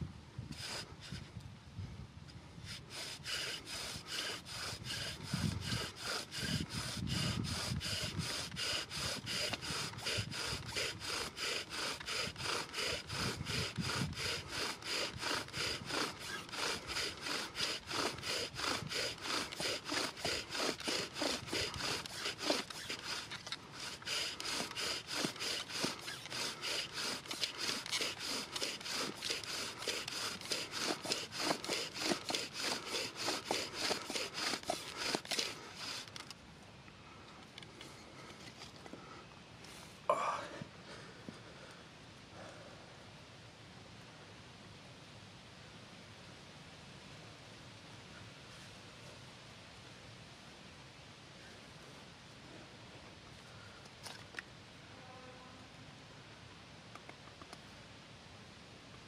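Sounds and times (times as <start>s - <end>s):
strokes working on wood: 2.6s - 36.4s.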